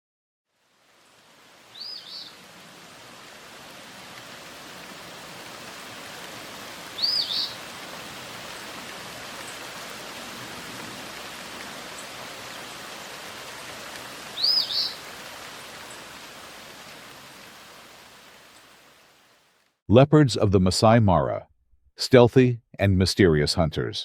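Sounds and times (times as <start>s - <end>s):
outdoor nature ambience hiss: 0.5s - 19.8s
bird call: 1.8s - 2.4s, 7.0s - 7.6s, 14.4s - 15.0s.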